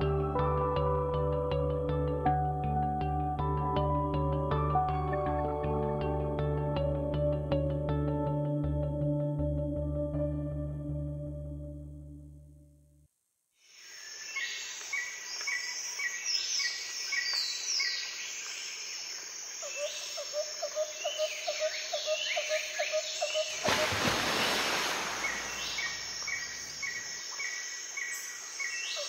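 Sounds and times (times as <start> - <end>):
insect chirps: 13.6 - 29.0
bird calls: 19.6 - 29.0.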